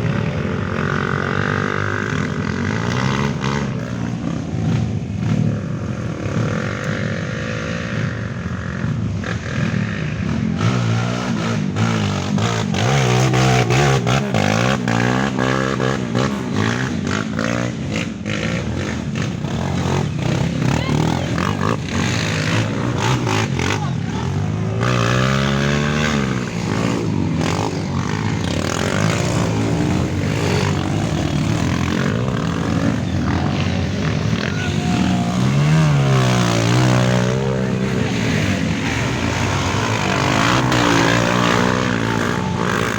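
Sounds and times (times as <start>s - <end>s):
motorcycle engines revving: 0.0s - 42.9s.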